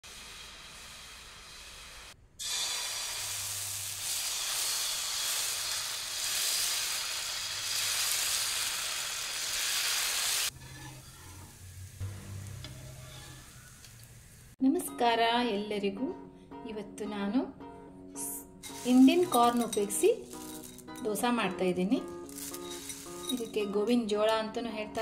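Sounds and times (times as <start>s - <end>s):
batter sizzling on a hot pan: 0.0s - 14.6s, 18.6s - 21.0s, 22.2s - 23.6s.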